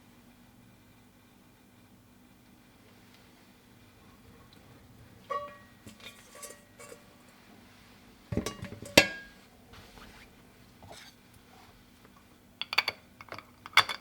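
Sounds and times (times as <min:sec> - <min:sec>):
tableware clinking and knocking: 0:08.3 - 0:09.4, 0:12.6 - 0:14.0.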